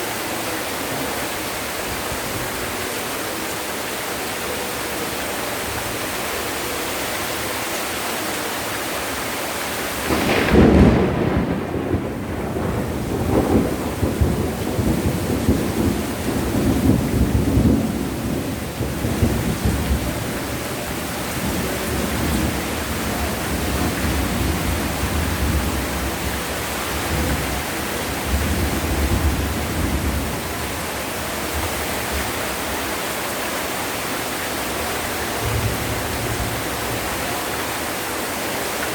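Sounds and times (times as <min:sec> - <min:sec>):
heavy rain: 0:00.0 - 0:38.9
thunderclap and rumble: 0:10.0 - 0:32.6, 0:35.4 - 0:37.0.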